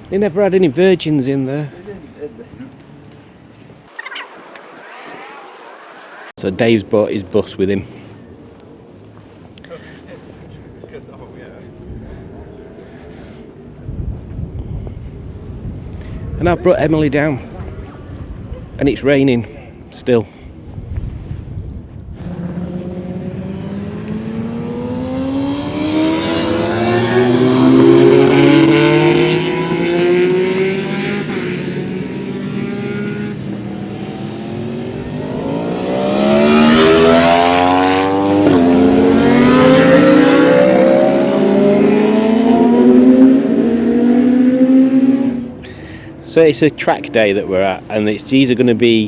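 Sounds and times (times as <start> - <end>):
motorcycles accelerating past: 22.2 - 46.2.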